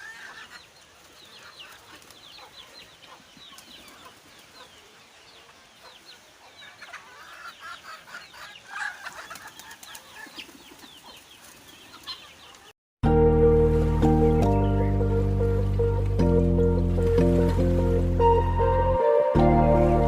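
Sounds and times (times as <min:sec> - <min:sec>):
birds chirping: 0:00.0 - 0:12.8, 0:14.0 - 0:20.0
loud music: 0:13.0 - 0:20.0.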